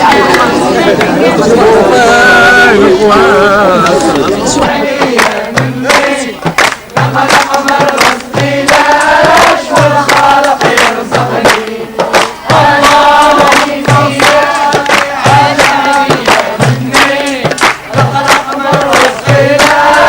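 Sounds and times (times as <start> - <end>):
hand clapping: 0.0 - 1.2, 3.8 - 20.0
group of voices singing: 0.0 - 20.0
low thud beat: 4.6 - 20.0.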